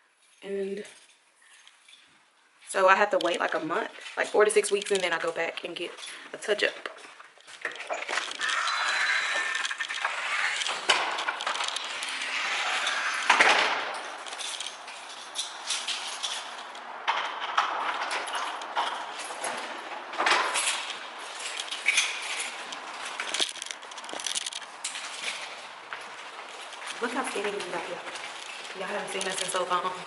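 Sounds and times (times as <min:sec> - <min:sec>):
objects clinking and clattering: 0:03.2 - 0:30.0.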